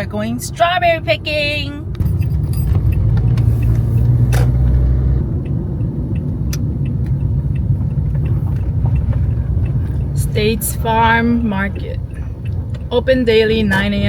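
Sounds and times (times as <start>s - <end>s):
car driving: 0.0s - 14.0s.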